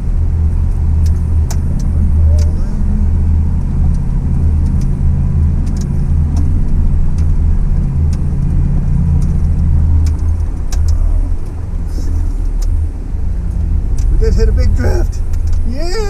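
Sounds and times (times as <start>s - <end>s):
truck engine rumbling: 0.0s - 16.0s.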